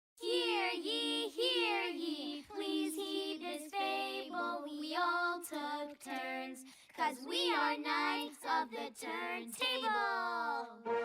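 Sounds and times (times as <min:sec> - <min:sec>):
cartoon characters singing: 0:00.2 - 0:11.0.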